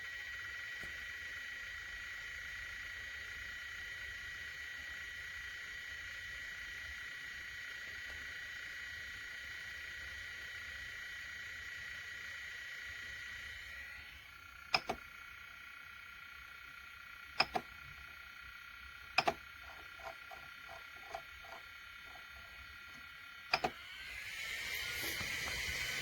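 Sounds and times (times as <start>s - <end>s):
blower fan whine: 4.9s - 26.0s
sharp double clicks: 14.8s - 15.0s.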